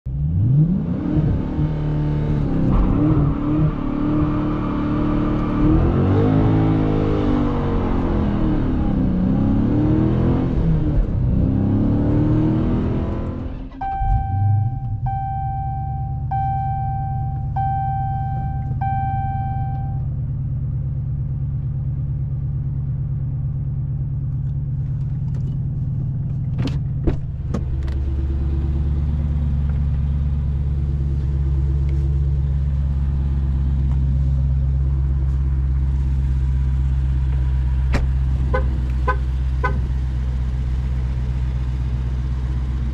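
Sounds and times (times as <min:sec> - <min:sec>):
car engine idling: 0:13.6 - 0:42.9
chime tones: 0:13.8 - 0:20.0.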